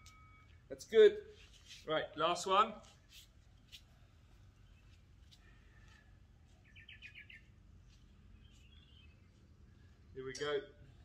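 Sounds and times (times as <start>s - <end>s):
short high bird chirps: 6.6s - 7.5s.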